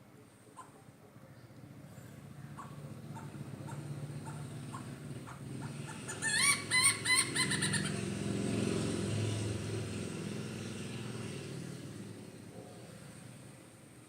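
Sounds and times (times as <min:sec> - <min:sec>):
low engine rumble: 0:00.0 - 0:14.0
hornbill calling: 0:02.4 - 0:08.6.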